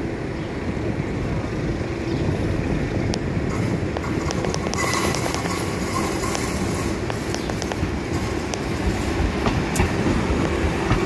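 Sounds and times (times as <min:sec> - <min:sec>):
electric train rumbling: 0:00.0 - 0:11.0
wheels clicking over rail joints: 0:03.0 - 0:11.0.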